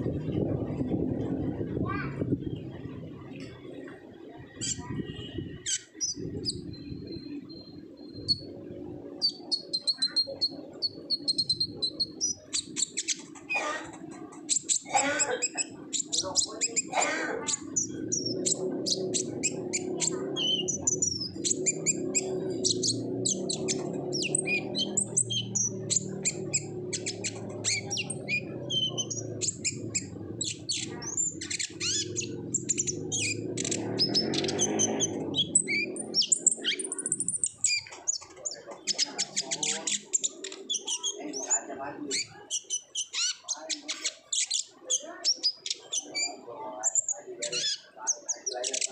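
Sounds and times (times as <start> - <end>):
bird chirping and trilling: 0.0 - 48.9.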